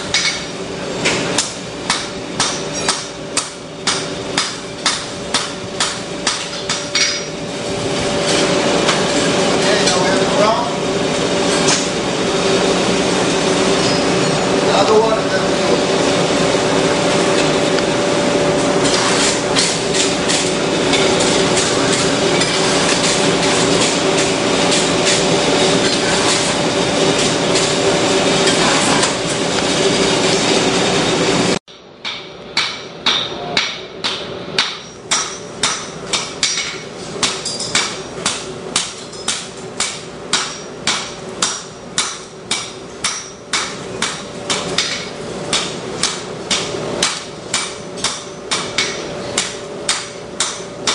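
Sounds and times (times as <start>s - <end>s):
loud steady noise: 0.0s - 38.9s
hammer ringing on anvil: 32.0s - 38.4s.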